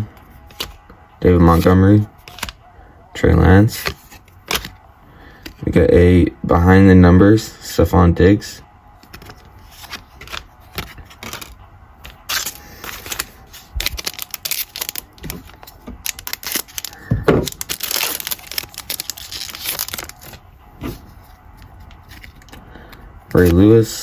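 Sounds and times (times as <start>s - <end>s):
foil card pack crinkling: 9.1s - 23.7s.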